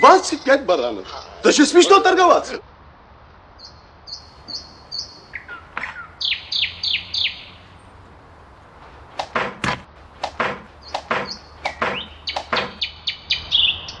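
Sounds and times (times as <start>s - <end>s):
birds chirping: 3.6s - 14.0s
sharp clicks: 9.1s - 12.8s.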